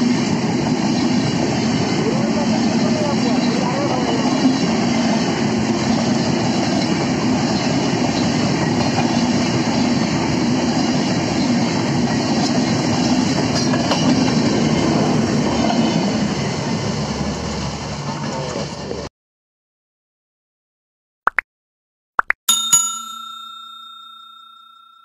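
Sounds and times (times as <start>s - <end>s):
train wheels rolling on rails: 0.0s - 19.1s.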